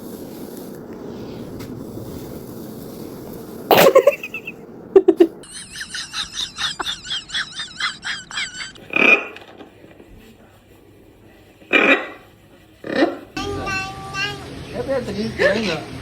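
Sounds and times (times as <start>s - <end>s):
parrot cough-like call: 3.7s - 4.5s, 11.7s - 12.2s.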